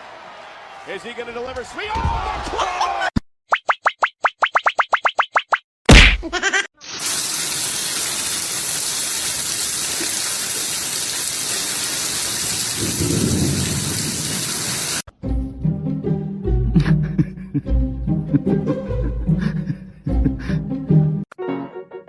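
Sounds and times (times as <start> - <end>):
music: 15.1 - 22.0.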